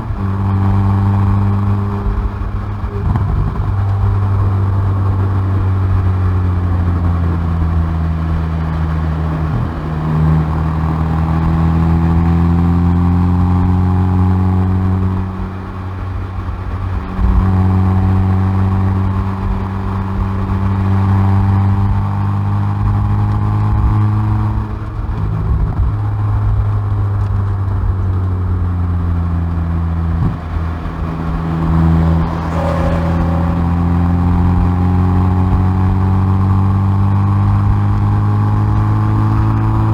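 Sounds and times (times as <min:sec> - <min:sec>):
car exhaust accelerating: 0:00.0 - 0:39.9.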